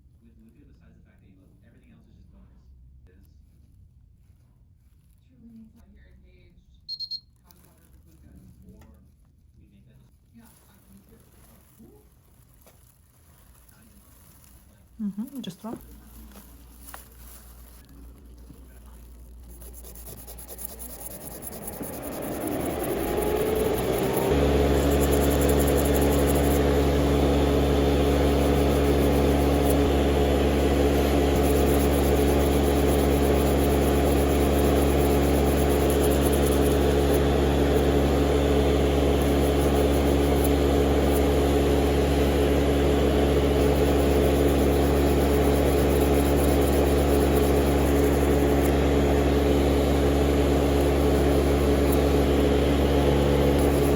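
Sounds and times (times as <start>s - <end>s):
small electric motor humming: 13.6s - 53.9s.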